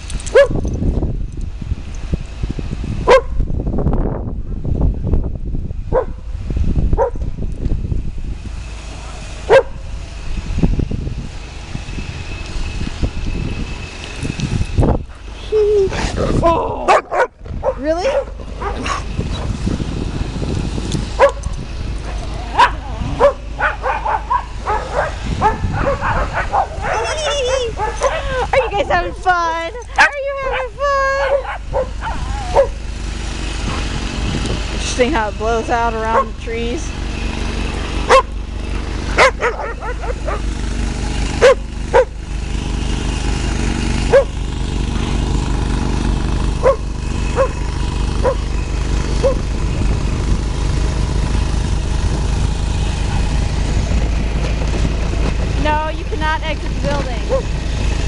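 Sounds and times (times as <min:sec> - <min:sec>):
wind rumble on microphone: 0:00.0 - 0:58.0
dogs barking and yipping: 0:00.1 - 0:00.8, 0:03.1 - 0:03.4, 0:05.9 - 0:06.2, 0:07.0 - 0:07.3, 0:08.9 - 0:09.8, 0:15.9 - 0:19.4, 0:21.1 - 0:32.9, 0:36.0 - 0:36.4, 0:38.0 - 0:38.4, 0:39.0 - 0:40.6, 0:41.2 - 0:42.2, 0:44.0 - 0:44.4, 0:46.6 - 0:49.5, 0:57.2 - 0:57.6
dog yips: 0:22.6 - 0:28.7, 0:29.9 - 0:32.8, 0:39.2 - 0:40.4.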